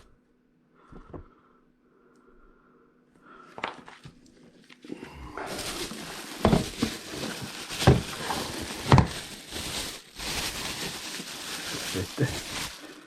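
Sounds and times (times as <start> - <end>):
packaging rustling: 5.4 - 13.0.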